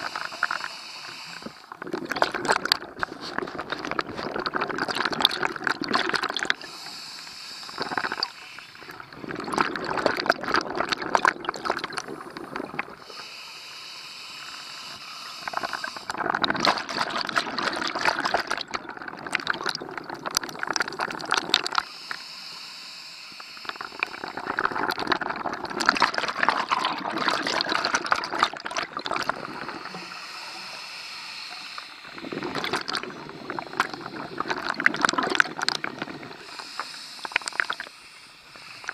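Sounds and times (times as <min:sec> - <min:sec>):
regulator hiss on inhale: 0:00.0 - 0:01.8, 0:06.6 - 0:09.2, 0:12.0 - 0:16.2, 0:21.1 - 0:24.7, 0:29.3 - 0:34.8, 0:35.8 - 0:38.9
exhaust bubbles rushing: 0:01.7 - 0:06.6, 0:08.9 - 0:13.0, 0:16.0 - 0:21.8, 0:23.8 - 0:30.0, 0:32.1 - 0:36.5.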